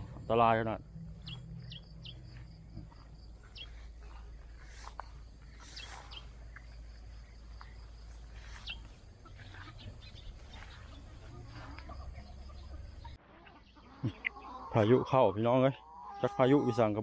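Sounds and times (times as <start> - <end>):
faint low hum: 0.0 - 13.2
birds chirping: 0.0 - 17.0.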